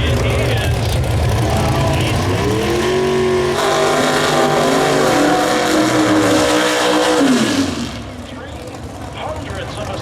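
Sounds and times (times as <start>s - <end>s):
car engine accelerating hard: 0.0s - 10.0s.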